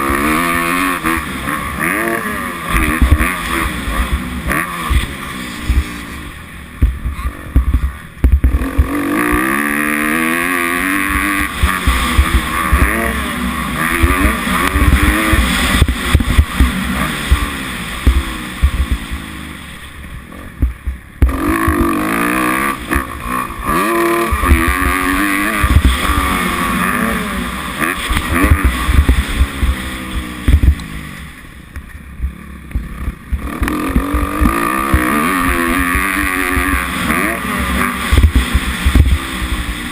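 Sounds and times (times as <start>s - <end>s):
motocross bike engine revving: 0.0s - 39.9s
wind rumble on microphone: 37.9s - 39.9s.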